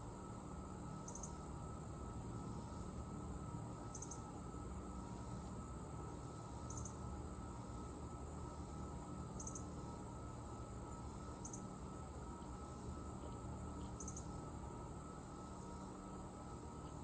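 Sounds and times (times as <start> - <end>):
insect trill: 0.1 - 12.1, 13.9 - 16.8
insect triple chirp: 1.0 - 1.4, 3.9 - 4.3, 6.6 - 7.0, 9.4 - 9.7, 11.3 - 11.7, 14.0 - 14.3.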